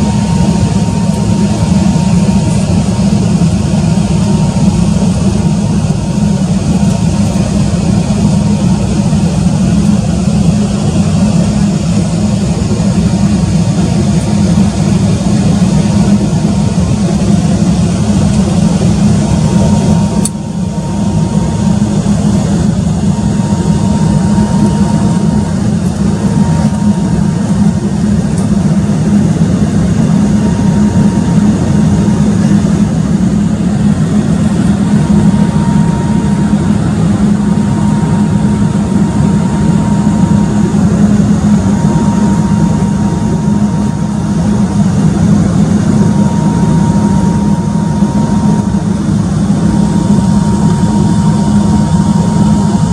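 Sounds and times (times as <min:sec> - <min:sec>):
airliner cabin engine rumble: 0:00.0 - 0:52.9.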